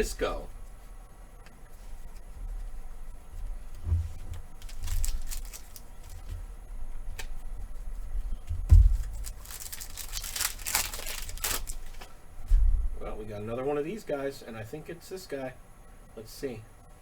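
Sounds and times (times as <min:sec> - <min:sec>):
cards rustling: 0:04.2 - 0:06.5, 0:08.8 - 0:12.1.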